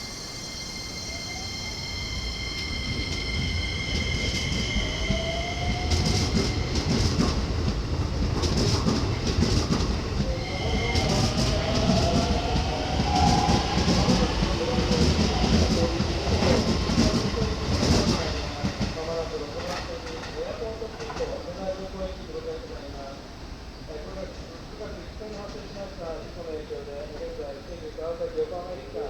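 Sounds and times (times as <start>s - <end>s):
high-pitched wheel squeal: 0.0s - 7.2s
train wheels clacking over rail joints: 5.8s - 10.3s, 19.6s - 21.5s.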